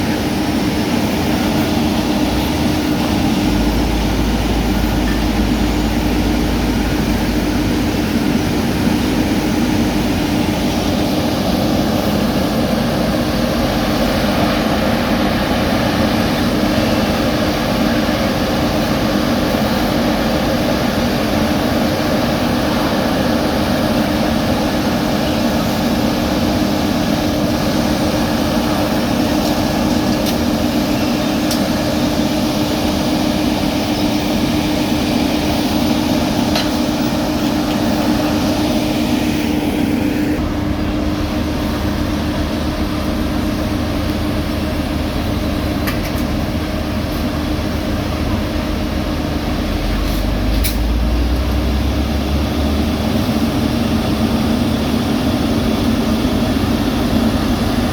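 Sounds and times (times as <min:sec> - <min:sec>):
diesel paving machinery running: 0:00.0 - 0:57.9
deep rumble: 0:02.2 - 0:10.2.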